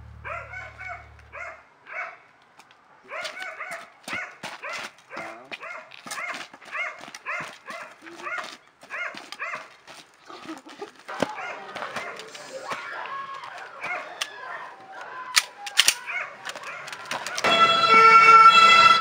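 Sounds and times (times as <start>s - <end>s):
dog barking: 0.2s - 2.3s, 3.0s - 9.8s, 11.1s - 12.9s, 13.7s - 14.7s, 16.0s - 17.4s.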